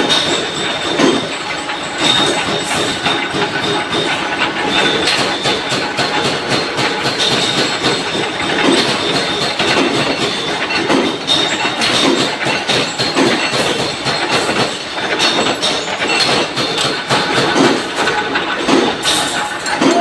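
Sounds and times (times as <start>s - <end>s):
heavy machinery clattering: 0.0s - 20.0s.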